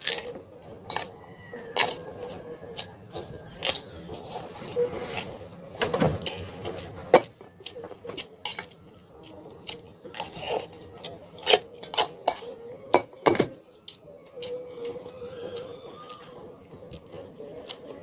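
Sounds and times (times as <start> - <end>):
utensils clinking against dishes: 11.4 - 13.5.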